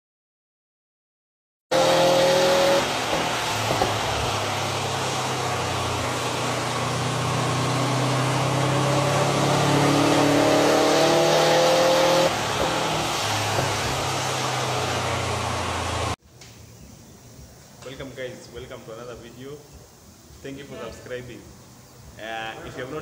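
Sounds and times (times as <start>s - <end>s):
car engine revving: 1.7s - 16.2s.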